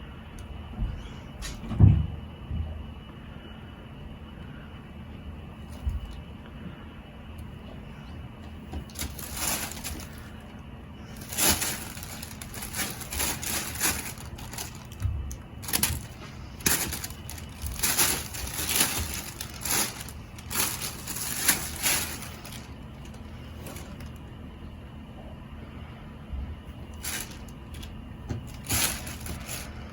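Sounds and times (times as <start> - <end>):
cat toy rustling and scraping: 8.7 - 10.5, 11.1 - 24.2, 26.9 - 29.9.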